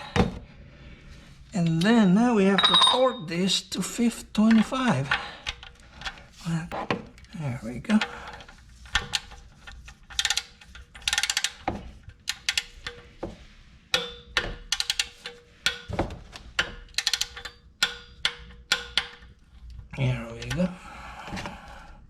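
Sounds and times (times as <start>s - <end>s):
torque wrench clicking: 10.1s - 11.6s, 16.9s - 19.2s.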